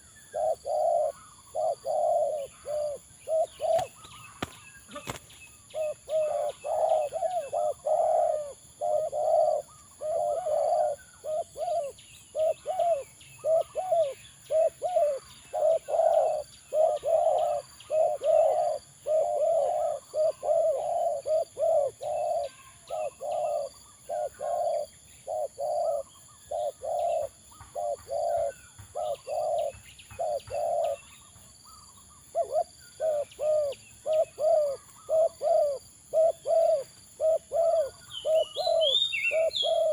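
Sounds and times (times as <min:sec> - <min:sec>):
dove cooing: 0:00.0 - 0:39.9
small birds chirping: 0:00.0 - 0:39.9.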